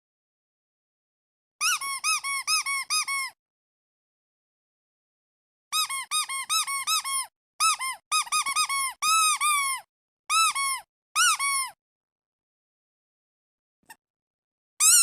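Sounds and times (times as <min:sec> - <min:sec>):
squeaky duck toy squeaking: 0:01.6 - 0:03.4, 0:05.7 - 0:11.8, 0:14.8 - 0:15.0.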